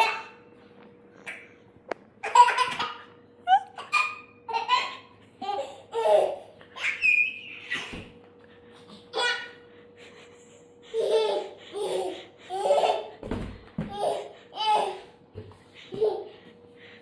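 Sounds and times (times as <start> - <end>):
baby laughing and squealing: 2.2 - 8.0, 10.9 - 13.2.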